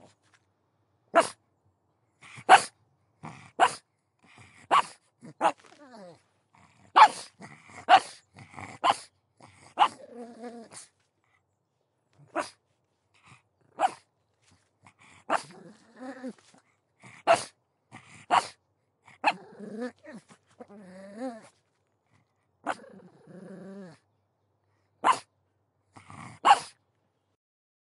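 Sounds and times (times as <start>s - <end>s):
dog barking: 1.1s - 1.4s, 2.4s - 2.7s, 3.6s - 3.8s, 4.7s - 5.6s, 6.9s - 7.3s, 7.9s - 8.2s, 8.8s - 9.1s, 12.3s - 12.6s, 13.8s - 14.0s, 17.2s - 17.5s, 18.3s - 18.6s, 25.0s - 25.3s, 26.4s - 26.8s
dog growling and whining: 4.3s - 11.0s, 14.8s - 24.1s.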